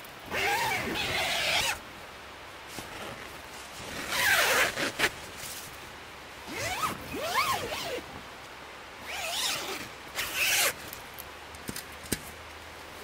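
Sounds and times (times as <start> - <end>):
zipper rasping: 0.3 - 1.8, 2.8 - 5.1, 6.5 - 8.0, 9.1 - 10.8.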